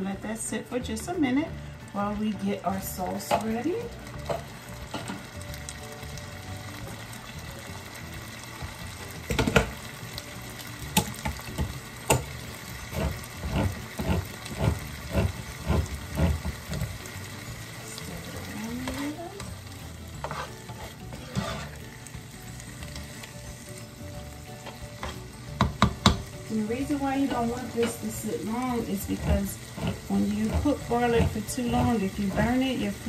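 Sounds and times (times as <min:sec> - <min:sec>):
tomatoes and garlic sizzling in oil: 0:00.0 - 0:33.0
utensil scraping pan: 0:12.9 - 0:16.9, 0:20.1 - 0:21.9, 0:27.2 - 0:32.8.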